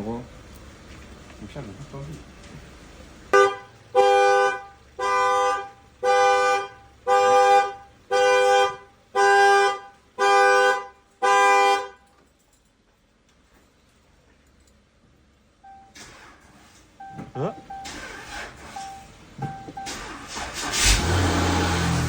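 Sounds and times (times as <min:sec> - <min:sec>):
car alarm two-tone honks: 0:03.3 - 0:12.1, 0:17.0 - 0:20.2.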